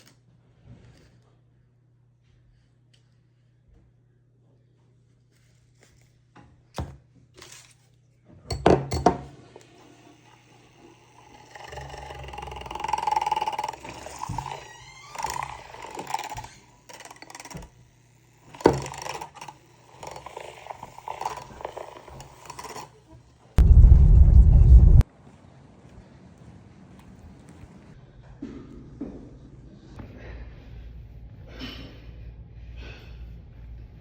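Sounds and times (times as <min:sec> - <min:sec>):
steady low hum: 0:23.6 - 0:25.0.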